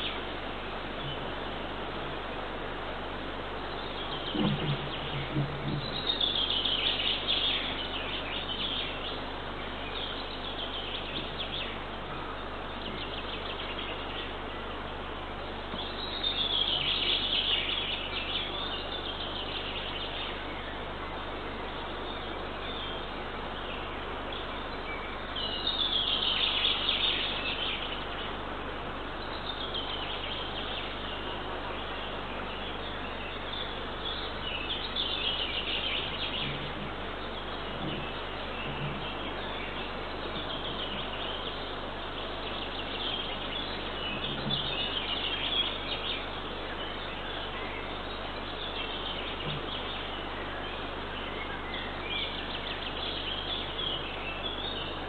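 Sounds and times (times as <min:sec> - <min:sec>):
songbird singing: 0:00.0 - 0:55.0
steady background hiss: 0:00.0 - 0:55.0.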